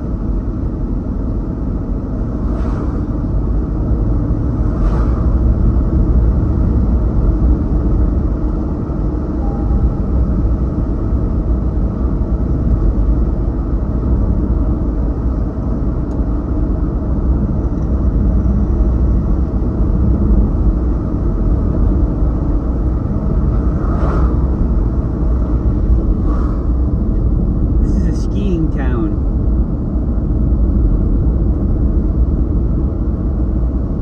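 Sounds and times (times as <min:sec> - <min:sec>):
car road and engine noise: 0:00.0 - 0:34.0.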